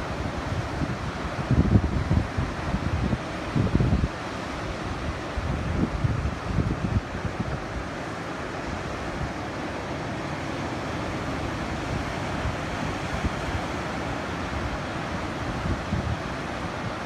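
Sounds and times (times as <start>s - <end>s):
wind buffeting microphone: 0.0s - 7.9s, 11.7s - 17.0s
ocean surf washing onto beach: 0.0s - 17.0s.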